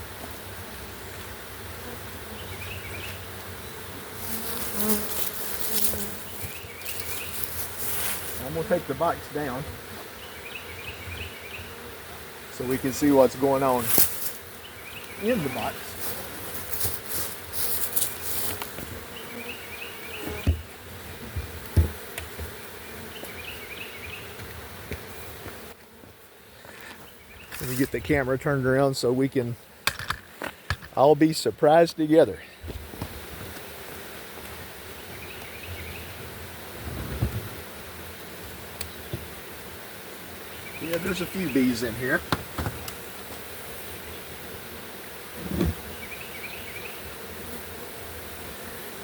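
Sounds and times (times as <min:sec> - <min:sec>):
bees buzzing: 0:00.0 - 0:49.0
rustling: 0:04.1 - 0:09.2, 0:12.6 - 0:19.5
dull thumps of box handled: 0:20.2 - 0:22.6.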